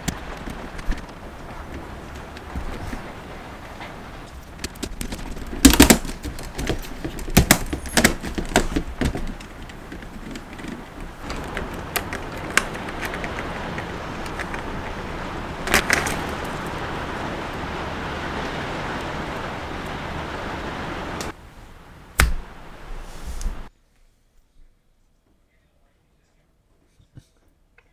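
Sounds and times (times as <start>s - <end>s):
plastic toy parts clicking: 4.6s - 15.0s
sharp knock: 22.2s - 22.6s.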